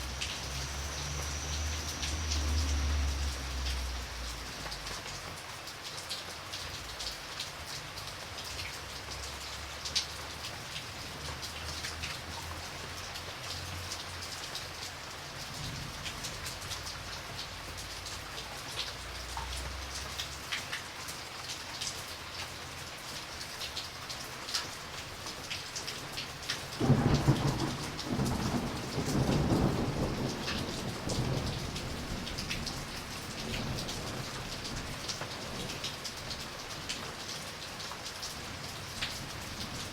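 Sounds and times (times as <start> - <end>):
raindrops striking close: 0.0 - 39.9
steady rain: 0.0 - 39.9
thunderclap rumbling: 26.8 - 32.8.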